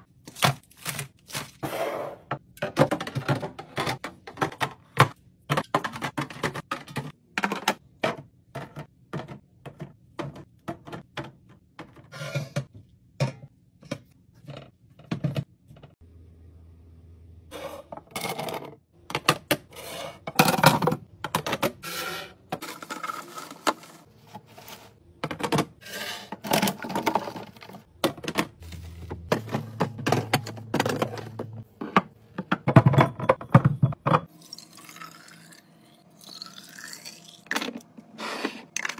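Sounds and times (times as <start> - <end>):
containers clicking and knocking: 2.4 - 15.9, 25.2 - 34.4.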